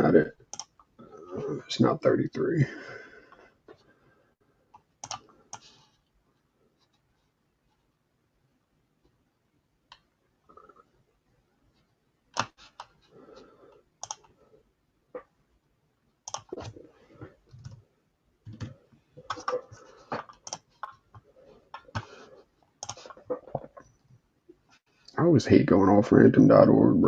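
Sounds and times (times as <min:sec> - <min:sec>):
keyboard typing: 0:00.5 - 0:00.9, 0:04.8 - 0:05.7, 0:14.0 - 0:14.4, 0:16.2 - 0:16.8, 0:18.5 - 0:22.1, 0:22.8 - 0:24.0
mouse clicking: 0:00.5 - 0:00.9, 0:04.8 - 0:05.7, 0:14.0 - 0:14.4, 0:16.2 - 0:16.7, 0:20.3 - 0:21.0, 0:22.8 - 0:23.2.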